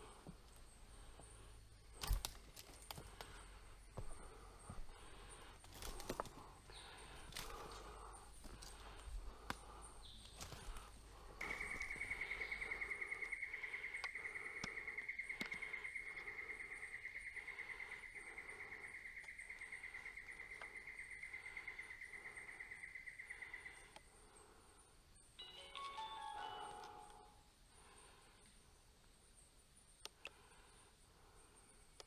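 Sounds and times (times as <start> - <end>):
insect trilling: 5.2 - 24.4.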